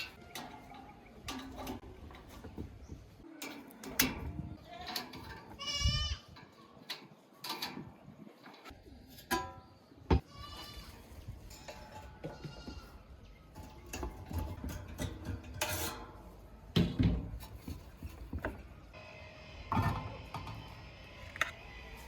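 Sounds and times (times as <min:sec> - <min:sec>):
metal knocks and clicks: 0:00.0 - 0:05.8, 0:13.5 - 0:18.7.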